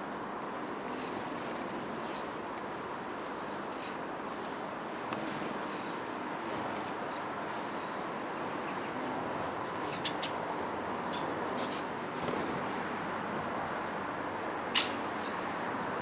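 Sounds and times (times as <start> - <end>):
outdoor background noise: 0.0 - 16.0
small birds chirping: 0.4 - 2.3, 3.3 - 6.0, 6.7 - 13.2, 14.7 - 16.0.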